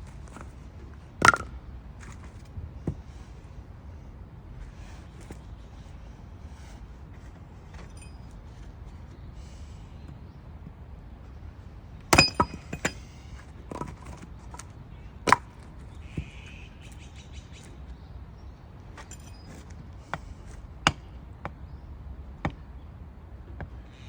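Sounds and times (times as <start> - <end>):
hatchet chopping firewood: 1.2 - 2.2, 12.1 - 13.1, 13.7 - 16.4, 19.0 - 21.6.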